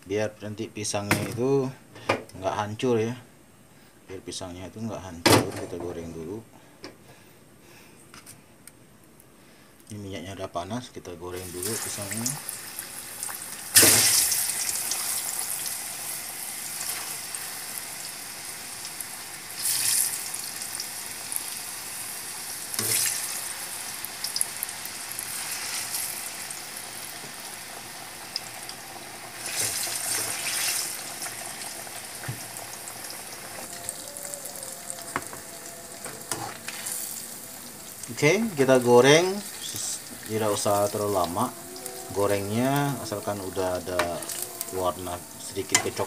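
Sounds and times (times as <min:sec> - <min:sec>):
banana deep-frying in oil: 0:11.3 - 0:46.0.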